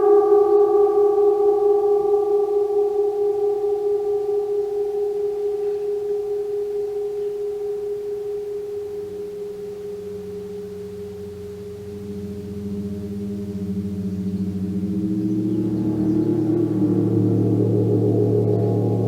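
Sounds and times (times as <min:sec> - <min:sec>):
gong ringing: 0:00.0 - 0:07.3, 0:08.7 - 0:19.0
deep pulsing hum: 0:08.4 - 0:19.0.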